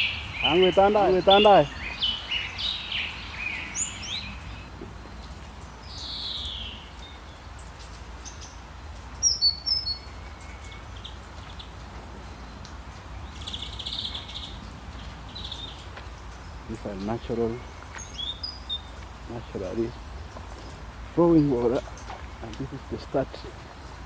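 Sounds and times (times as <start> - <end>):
sharp high bird chirps: 0.0 - 4.6
trilled bird call: 0.0 - 4.7.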